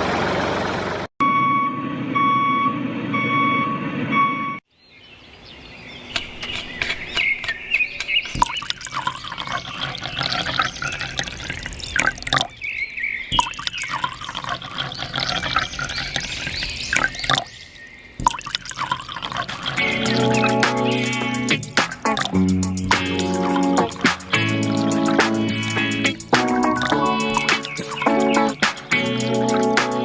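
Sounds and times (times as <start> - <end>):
water dripping: 8.0 - 30.0
water pouring and splashing: 8.1 - 12.6, 13.3 - 30.0.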